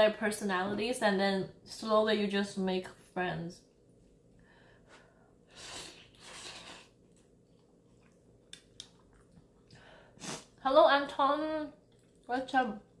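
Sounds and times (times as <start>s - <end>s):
person breathing softly: 4.4s - 6.2s.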